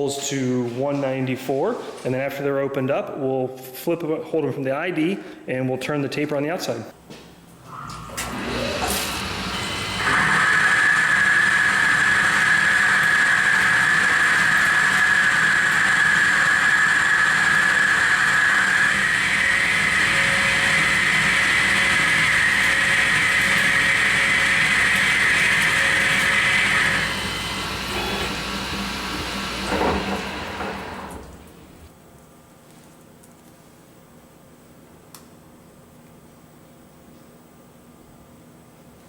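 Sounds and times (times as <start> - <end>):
high-pitched machine whine: 7.8 - 31.9
lathe cutting steel: 8.1 - 31.8.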